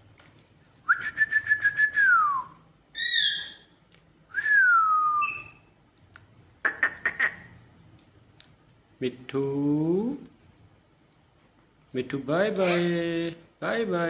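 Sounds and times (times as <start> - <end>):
parrot whistling and calling: 2.9 - 3.7, 4.4 - 5.7.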